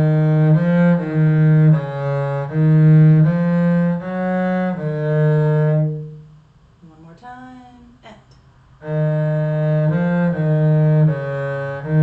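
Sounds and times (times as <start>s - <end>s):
cello bowing slow notes: 0.0s - 6.4s, 8.8s - 12.0s.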